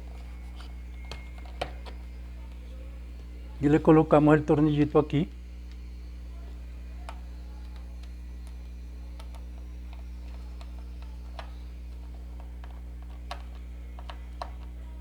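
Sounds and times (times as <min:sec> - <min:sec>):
steady low hum: 0:00.0 - 0:15.0
screwdriver clicking into plastic: 0:07.0 - 0:14.8.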